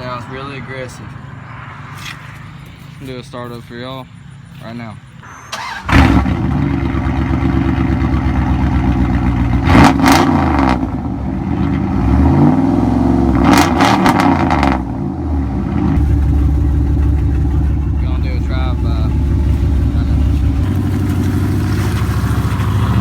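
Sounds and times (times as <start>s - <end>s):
truck engine idling and revving: 0.0s - 23.0s
truck engine starting: 5.2s - 23.0s.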